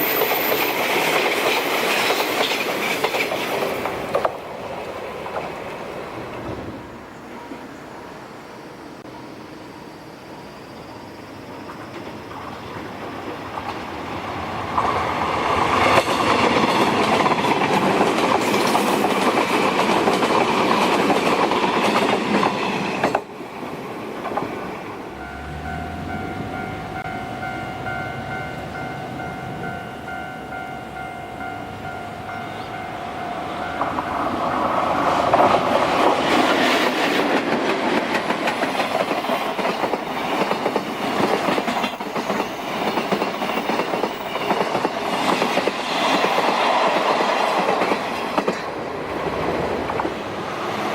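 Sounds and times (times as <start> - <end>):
train wheels clattering over rail joints: 0.0 - 6.7, 14.7 - 24.9, 33.8 - 50.2.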